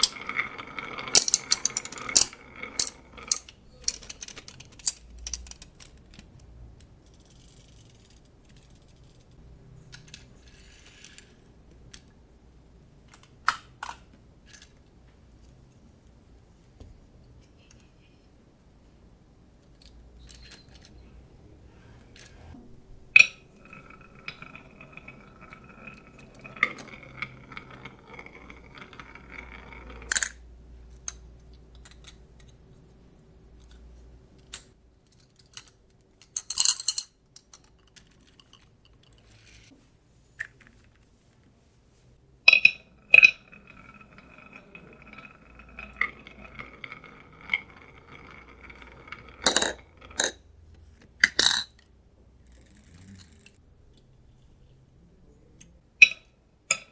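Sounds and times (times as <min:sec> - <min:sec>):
marbles clacking and clinking: 0:00.0 - 0:06.2, 0:23.0 - 0:31.2, 0:42.5 - 0:50.5
marbles rolling on wooden track: 0:00.0 - 0:06.3, 0:22.1 - 0:31.2, 0:42.5 - 0:50.5.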